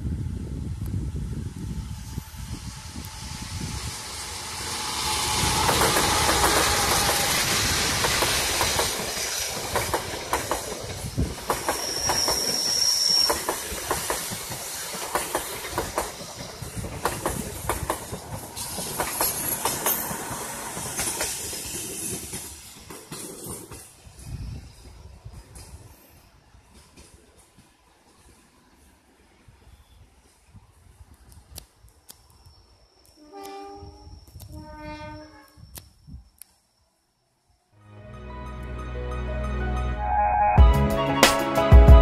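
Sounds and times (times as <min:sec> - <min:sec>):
locomotive passing: 0:00.2 - 0:25.9
high wheel squeal: 0:01.9 - 0:08.0, 0:11.6 - 0:13.7
wheels clacking over rail joints: 0:04.6 - 0:24.0.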